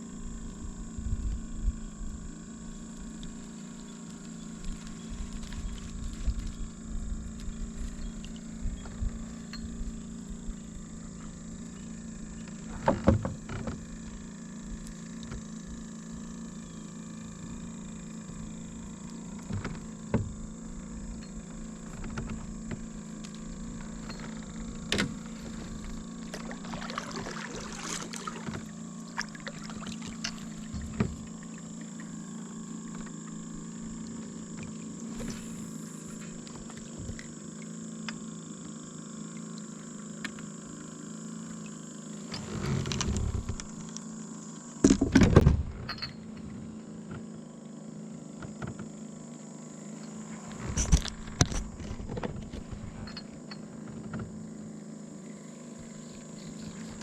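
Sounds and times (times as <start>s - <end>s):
steady low hum: 0.0s - 57.0s
paddle knocking and splashing: 24.9s - 32.0s.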